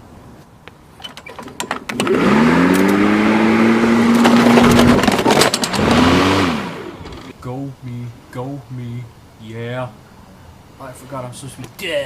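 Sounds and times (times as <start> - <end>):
lawnmower engine running: 1.4 - 7.3
objects knocking under mower deck: 4.0 - 6.0.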